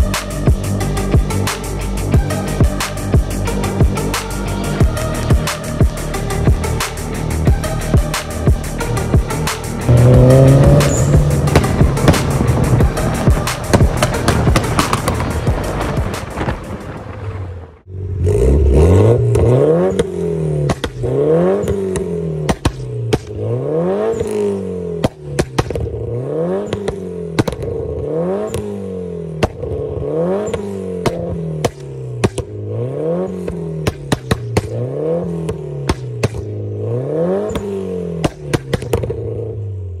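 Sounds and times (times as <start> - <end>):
engine revving: 0.0 - 17.2, 17.8 - 40.0
exhaust cracks and pops: 9.9 - 17.9, 19.1 - 39.5.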